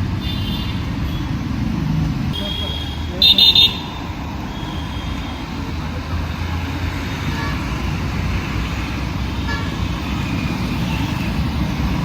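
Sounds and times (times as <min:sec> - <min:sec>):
busy street traffic: 0:00.0 - 0:12.0
vehicle horn blasts: 0:02.4 - 0:05.1.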